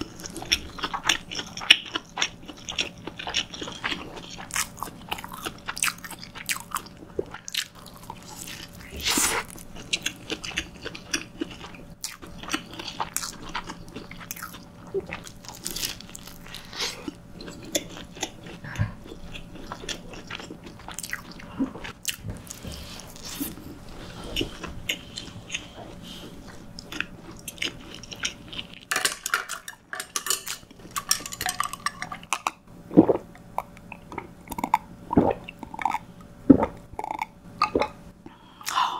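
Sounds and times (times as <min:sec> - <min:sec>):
chewing with wet mouth sounds: 0:00.0 - 0:28.9.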